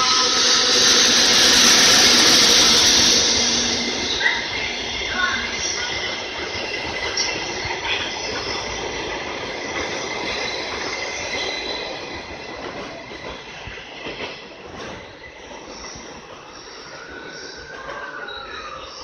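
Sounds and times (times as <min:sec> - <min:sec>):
high wheel squeal: 0:00.0 - 0:08.5
train wheels clicking over rails: 0:00.0 - 0:18.2.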